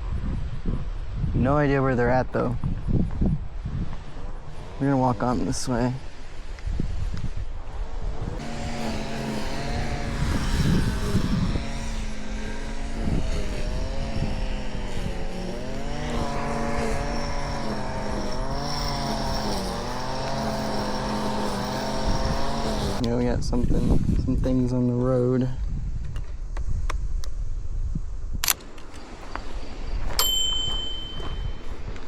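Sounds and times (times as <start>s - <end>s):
faint high whine: 0.0s - 23.2s, 28.5s - 32.0s
small gas engine running: 1.5s - 7.0s, 7.6s - 24.3s, 30.2s - 31.9s.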